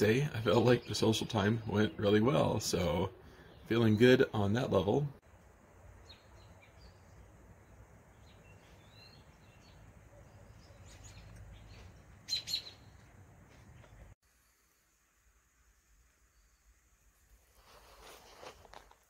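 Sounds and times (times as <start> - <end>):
small birds chirping: 0.0 - 4.9, 5.8 - 15.1.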